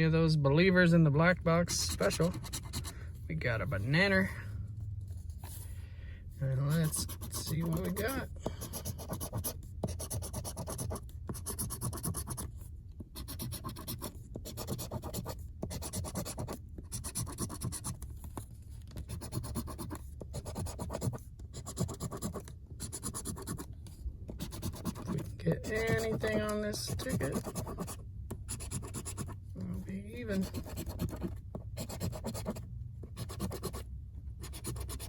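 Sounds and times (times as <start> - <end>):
lottery ticket being scratched: 1.7 - 2.9, 6.4 - 12.5, 13.2 - 18.0, 19.0 - 23.7, 24.3 - 29.4, 30.2 - 33.8, 34.4 - 35.0.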